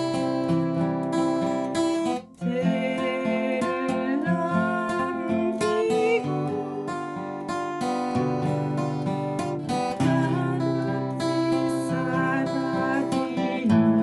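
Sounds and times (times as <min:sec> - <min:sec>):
acoustic guitar picking: 0:00.0 - 0:14.0.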